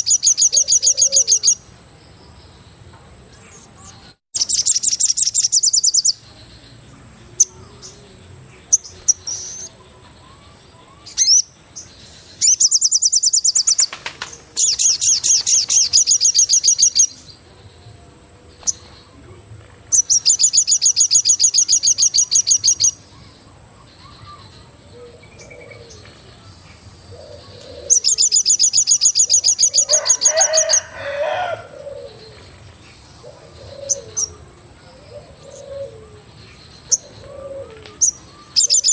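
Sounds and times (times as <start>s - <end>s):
lower animal call: 29.3s - 32.4s.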